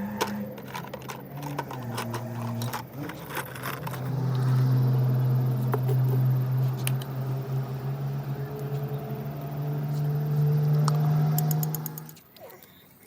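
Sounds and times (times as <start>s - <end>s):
machine hum: 0.0s - 12.2s.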